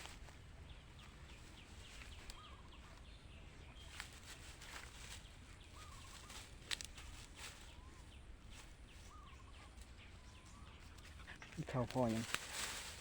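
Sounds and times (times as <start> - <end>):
birds chirping: 0.0 - 12.6
light clicks and crackles: 6.0 - 7.7, 10.9 - 13.0.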